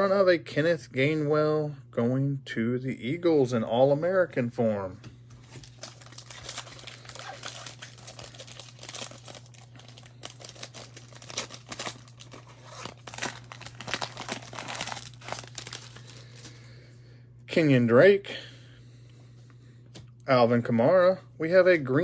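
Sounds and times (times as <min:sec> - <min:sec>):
low electrical hum: 0:00.0 - 0:22.0
foil wrapper crinkling and tearing: 0:05.4 - 0:16.6.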